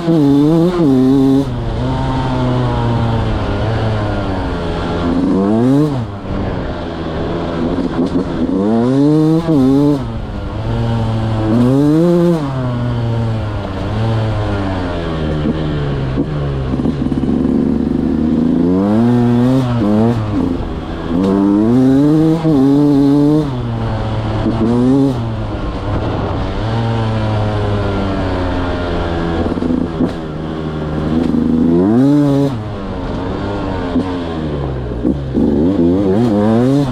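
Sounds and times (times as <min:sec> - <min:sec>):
two-stroke engine revving and idling: 0:00.0 - 0:36.9.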